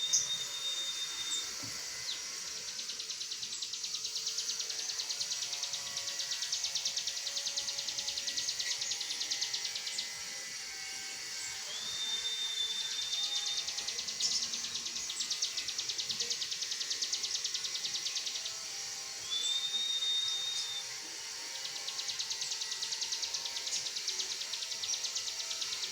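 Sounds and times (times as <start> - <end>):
bird long level whistle: 0.0 - 1.5, 11.6 - 13.8, 19.2 - 20.9
songbird buzzy ticking trills: 0.0 - 25.9.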